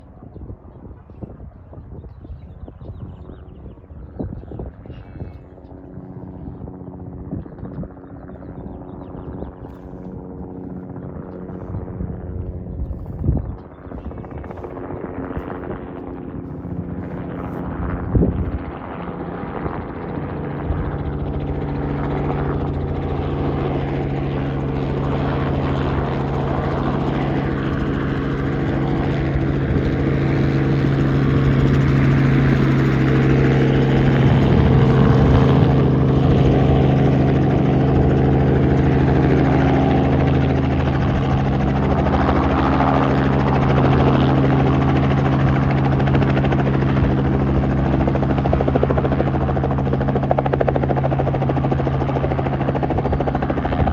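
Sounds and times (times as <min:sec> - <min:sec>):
helicopter rotor and engine drone: 0:00.0 - 0:53.9.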